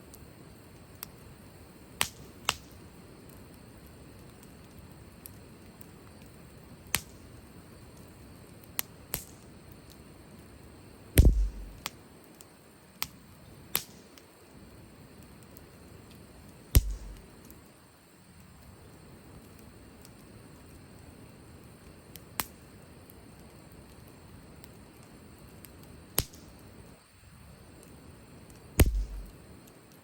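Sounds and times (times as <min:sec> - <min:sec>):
wood fire crackling: 0:00.0 - 0:30.0
deep thump: 0:11.2 - 0:11.8, 0:16.8 - 0:17.2, 0:28.8 - 0:29.3.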